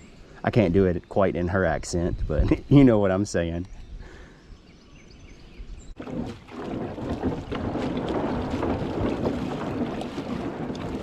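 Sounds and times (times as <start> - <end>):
wind buffeting microphone: 1.9 - 3.0, 5.0 - 11.0
kayak water sounds: 5.9 - 11.0.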